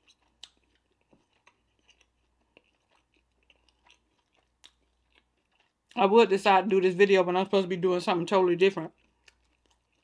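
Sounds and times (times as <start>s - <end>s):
wet mouth chewing clicks: 0.0s - 6.0s.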